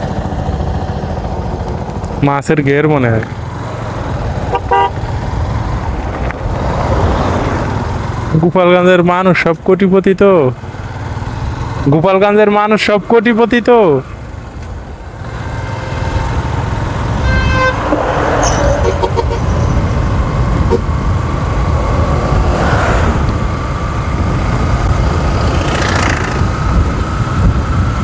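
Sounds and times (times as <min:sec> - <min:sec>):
motorcycle engine and wind rumble: 0:00.0 - 0:28.0
traffic passing: 0:00.0 - 0:28.0
horn tooting: 0:04.4 - 0:05.2, 0:17.0 - 0:19.8.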